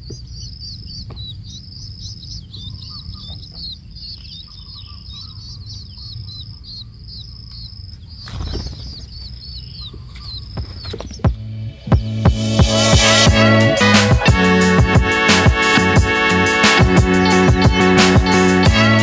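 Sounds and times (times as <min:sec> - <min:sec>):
bird chicks chirping: 0:00.0 - 0:19.0
steady low rumble: 0:11.0 - 0:13.8.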